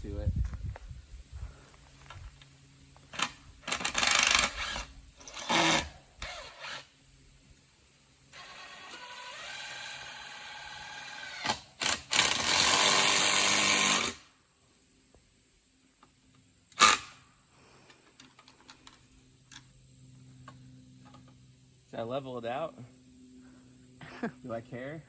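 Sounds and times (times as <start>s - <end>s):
power drill driving screw: 3.1s - 6.9s, 8.3s - 14.2s.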